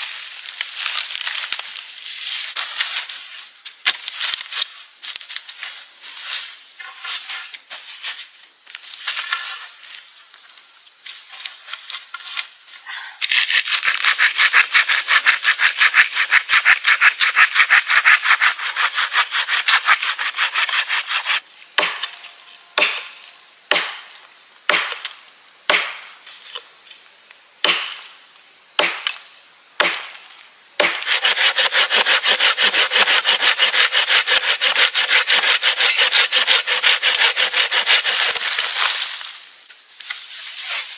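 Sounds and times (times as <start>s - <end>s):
hand saw cutting wood: 13.6s - 21.9s, 30.8s - 38.9s
sharp knocks on wood: 21.8s - 22.1s, 22.8s - 23.0s, 23.7s - 24.0s, 24.7s - 25.0s, 25.7s - 26.0s, 29.8s - 30.1s
wood crackling and rubbing: 31.0s - 39.4s.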